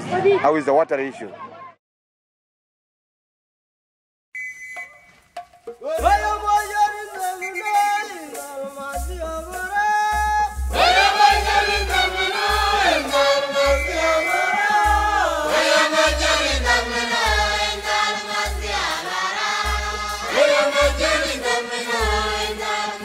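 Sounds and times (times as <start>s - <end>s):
deep bass pulses: 10.3s - 19.0s
choir singing: 10.6s - 23.0s.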